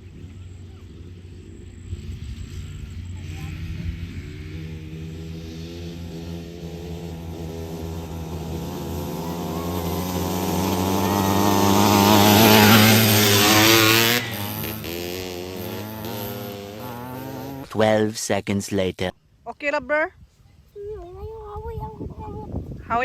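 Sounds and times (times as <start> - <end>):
dirt bike engine running: 0.0 - 17.7.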